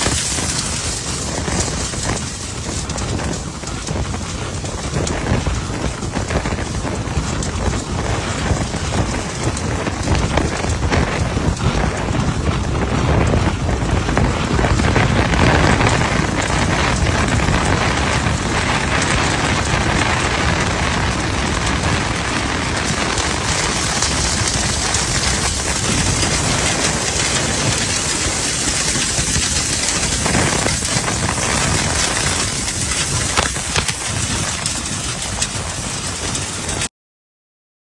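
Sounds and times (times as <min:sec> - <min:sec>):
debris crackling through duct: 0:00.0 - 0:36.9.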